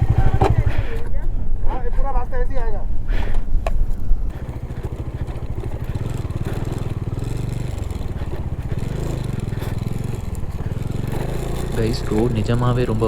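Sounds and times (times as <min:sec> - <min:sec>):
motorcycle engine on rough road: 0:00.0 - 0:01.1, 0:03.8 - 0:13.0.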